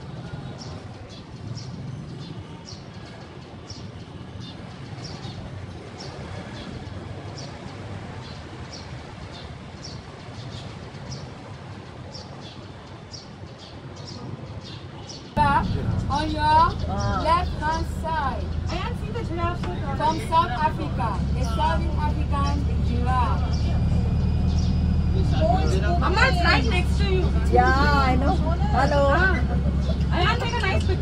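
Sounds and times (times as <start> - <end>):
low background rumble: 15.4 - 31.0.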